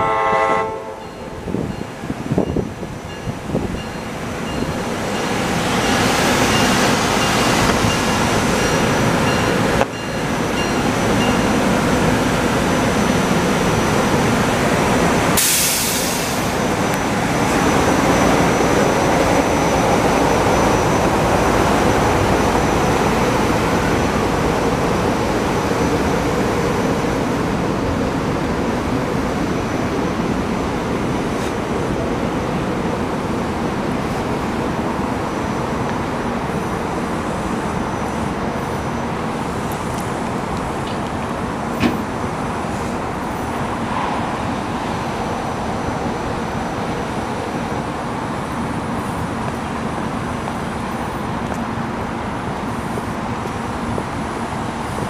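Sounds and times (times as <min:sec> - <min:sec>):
train wheels rumbling on rails: 0:00.9 - 0:55.0
loud hiss: 0:15.4 - 0:16.8.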